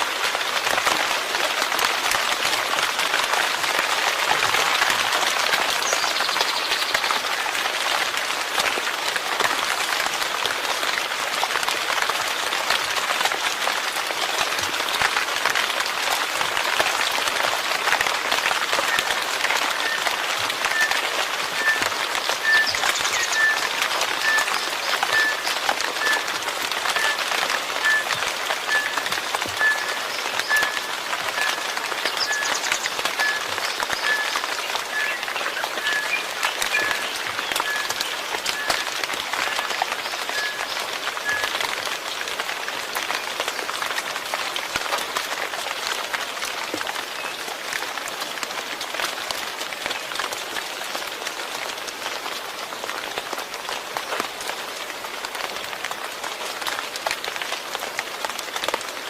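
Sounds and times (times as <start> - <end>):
raindrops ticking close by: 0.0 - 59.0
steady rain falling: 0.0 - 59.0
faint high chirp: 21.6 - 26.3, 26.9 - 27.2, 27.8 - 38.9, 39.5 - 41.6.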